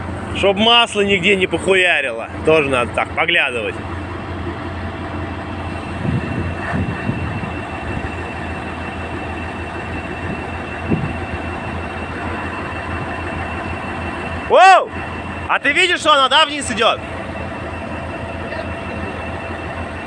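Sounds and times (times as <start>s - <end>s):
heavy engine running: 0.0s - 20.0s
high whine: 5.4s - 20.0s.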